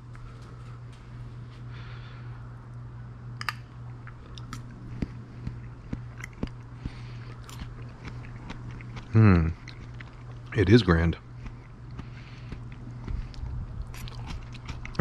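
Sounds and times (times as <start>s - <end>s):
person chewing with crunches: 3.4s - 10.6s, 11.2s - 15.0s.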